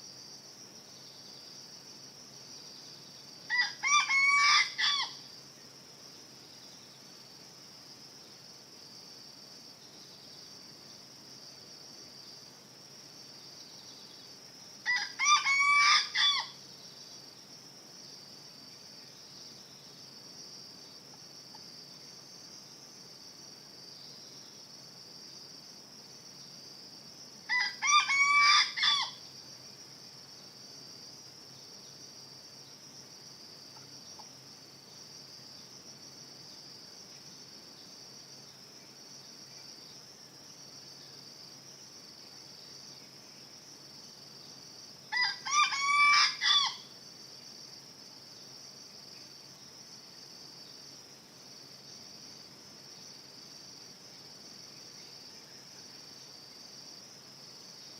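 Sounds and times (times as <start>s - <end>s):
crickets droning: 0.0s - 57.9s
junglefowl crowing: 3.5s - 5.2s, 14.8s - 16.6s, 27.5s - 29.2s, 45.1s - 46.8s.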